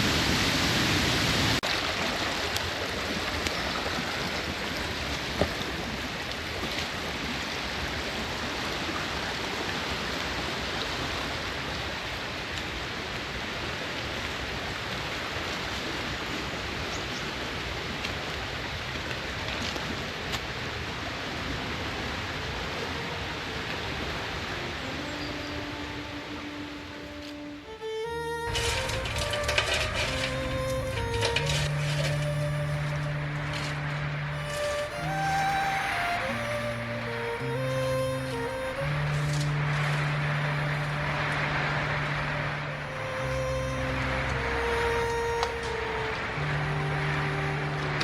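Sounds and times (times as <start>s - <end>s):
louder water rush: 0.0s - 11.6s, 21.6s - 48.0s
stream water flowing: 0.0s - 48.0s.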